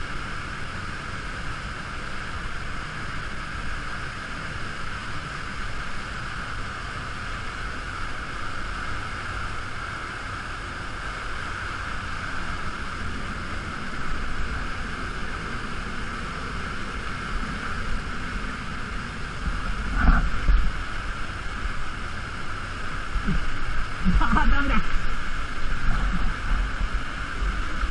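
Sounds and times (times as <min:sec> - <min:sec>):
waterfall rushing: 0:09.0 - 0:27.9.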